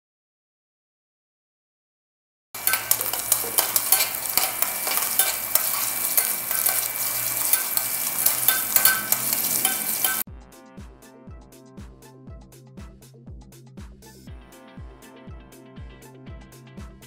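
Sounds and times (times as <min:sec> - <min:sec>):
garlic and ginger sizzling in oil: 0:02.6 - 0:10.2
metal spoon scraping a pan: 0:02.6 - 0:10.2.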